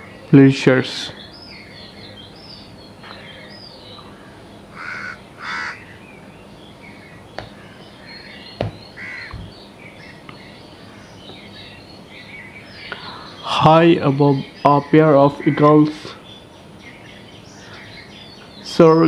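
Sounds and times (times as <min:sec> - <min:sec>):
loud bird calls: 0:00.0 - 0:19.0
small high bird chirps: 0:05.6 - 0:15.5, 0:16.1 - 0:19.0.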